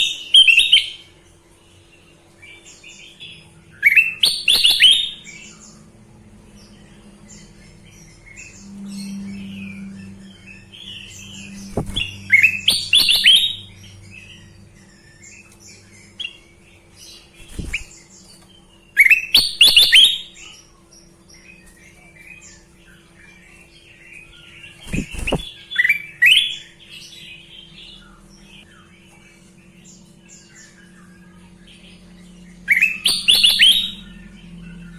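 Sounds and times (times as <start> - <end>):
faint steady hum: 0.0 - 34.9
bird twittering: 1.8 - 31.2, 32.6 - 34.9
bird whistling phrases: 11.2 - 13.7.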